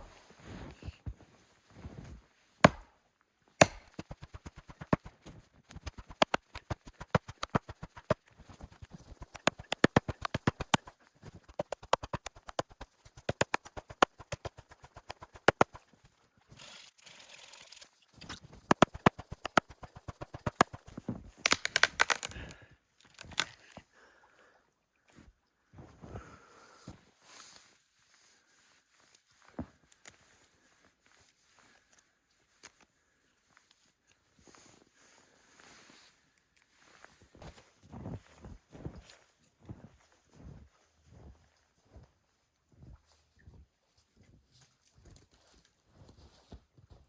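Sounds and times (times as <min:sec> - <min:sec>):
sharp chopping knocks: 0:02.6 - 0:02.9, 0:03.6 - 0:05.2, 0:18.7 - 0:20.9
rustling: 0:03.7 - 0:22.4.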